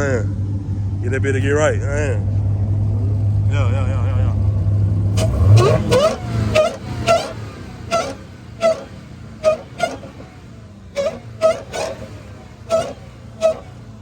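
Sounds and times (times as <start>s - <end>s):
car engine running low: 0.0s - 14.0s
short sharp exhaust pops: 5.1s - 10.4s, 11.0s - 14.0s.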